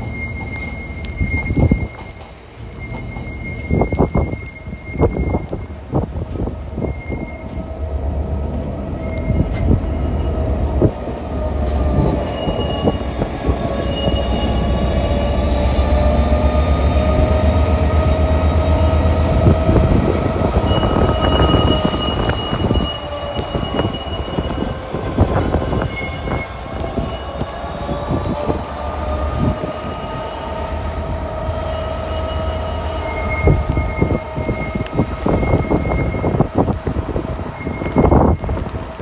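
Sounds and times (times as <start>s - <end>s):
freight train rumbling: 0.0s - 39.0s
wheels squealing: 0.0s - 39.0s.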